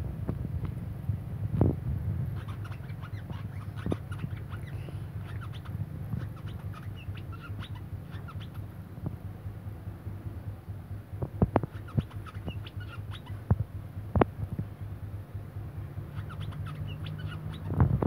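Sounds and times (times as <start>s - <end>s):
steady low hum: 0.0s - 18.0s
songbird chirping: 2.4s - 8.9s, 11.6s - 13.5s, 15.8s - 17.8s.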